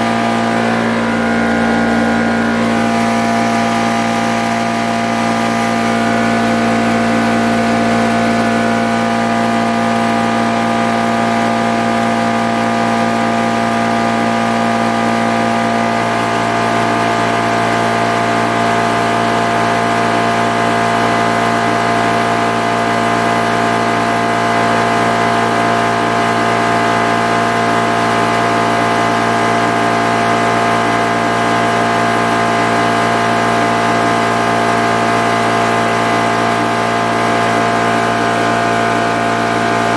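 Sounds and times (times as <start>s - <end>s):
air compressor motor hum: 0.0s - 39.9s.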